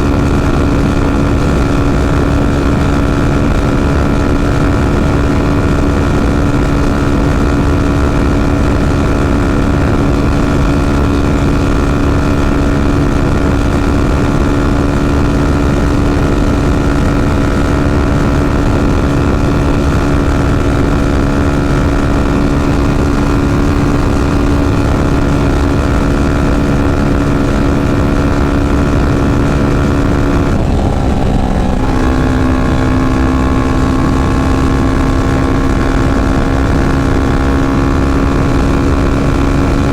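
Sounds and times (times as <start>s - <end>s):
wind rushing: 0.0s - 37.4s
motorcycle engine cruising: 0.0s - 39.9s.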